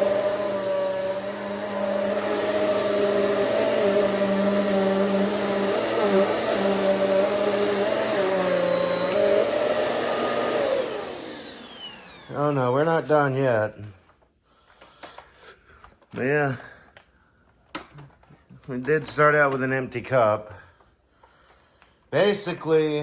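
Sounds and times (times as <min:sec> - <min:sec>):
vacuum cleaner on carpet: 0:00.0 - 0:13.8.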